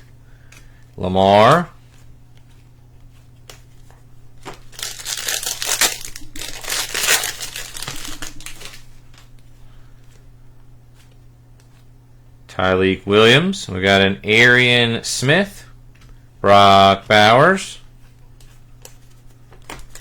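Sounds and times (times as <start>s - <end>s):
plastic wrapper crinkling and tearing: 4.4s - 9.4s, 19.7s - 20.0s.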